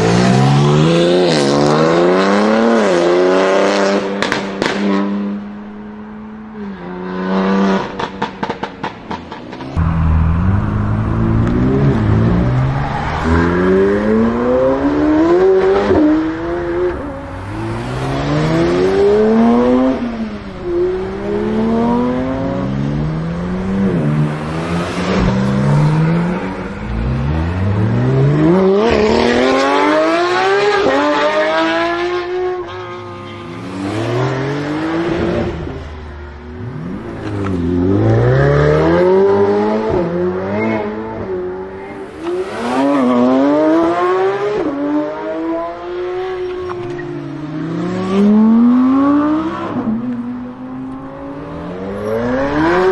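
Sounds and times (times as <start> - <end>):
supercar engines accelerating hard: 9.7 - 32.6.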